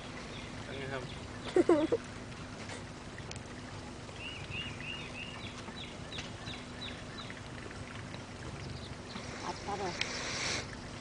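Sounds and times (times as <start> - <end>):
boat motor hum: 0.0 - 11.0
water: 0.0 - 11.0
bird chirping: 4.1 - 7.4.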